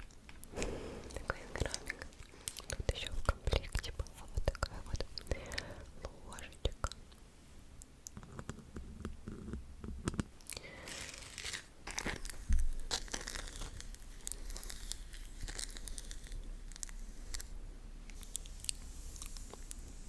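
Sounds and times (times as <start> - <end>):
crinkling and tearing: 10.1 - 20.0.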